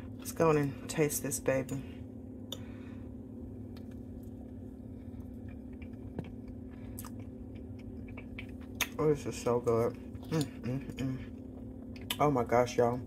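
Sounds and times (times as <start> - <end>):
steady low hum: 0.0 - 13.0
chewing mouth clicks: 5.2 - 9.0.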